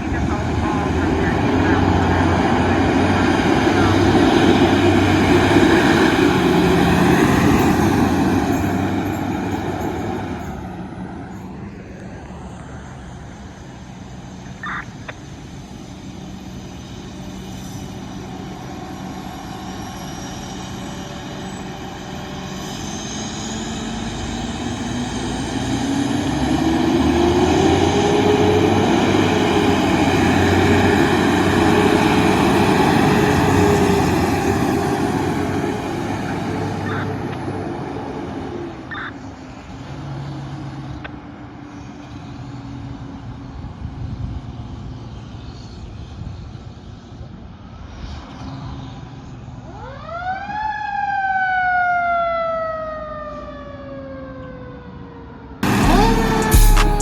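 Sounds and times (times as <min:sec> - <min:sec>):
fire truck engine passing: 0:00.0 - 0:57.0
brief high tone: 0:36.2 - 0:37.3, 0:55.6 - 0:57.0.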